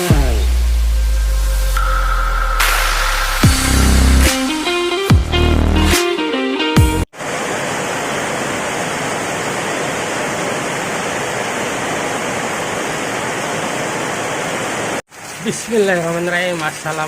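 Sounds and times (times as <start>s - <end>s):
electronic music: 0.0s - 7.1s
heavy rain hissing: 0.5s - 4.9s, 7.2s - 17.0s.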